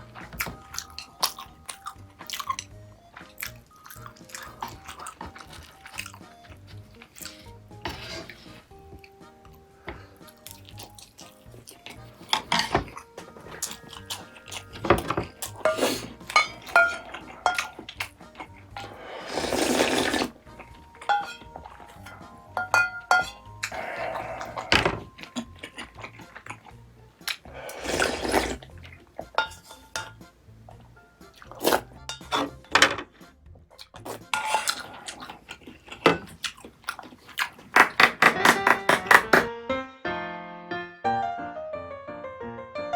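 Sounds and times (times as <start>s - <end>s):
slurping soup: 0.0s - 32.6s, 33.7s - 38.3s
light background music: 0.0s - 42.9s
utensils clinking against dishes: 10.2s - 26.6s, 27.2s - 30.3s, 31.5s - 33.2s, 33.9s - 39.4s.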